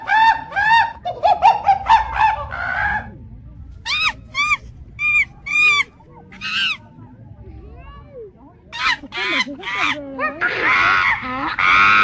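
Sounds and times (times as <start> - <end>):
high-pitched animal calls: 3.8 - 6.8, 8.8 - 12.0.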